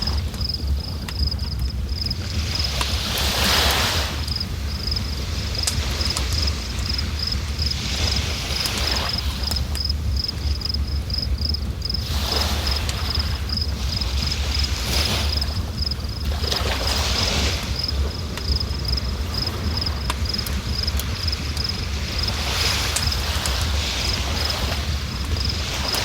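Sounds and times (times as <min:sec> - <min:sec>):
cricket chirping: 0:00.0 - 0:26.0.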